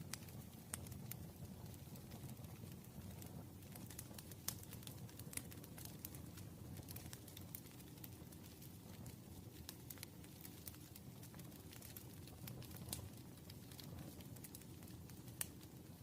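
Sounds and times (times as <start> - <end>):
campfire crackling and popping: 0.0 - 16.0
low rumble of burning: 0.0 - 16.0.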